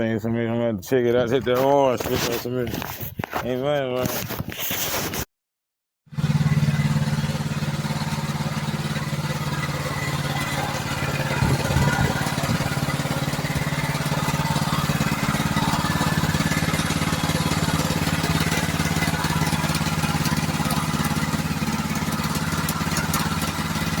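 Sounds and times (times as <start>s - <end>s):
engine knocks: 6.1s - 24.0s
small gas engine running: 6.1s - 24.0s.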